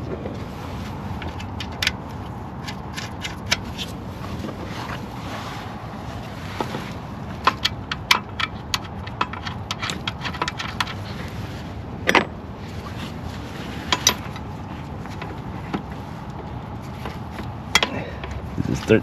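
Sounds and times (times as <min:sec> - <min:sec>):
background hum: 0:00.0 - 0:19.0
metal tools clicking and clinking: 0:07.4 - 0:11.2, 0:12.0 - 0:12.4, 0:13.9 - 0:14.5, 0:17.7 - 0:18.4
metal clank: 0:12.0 - 0:12.4.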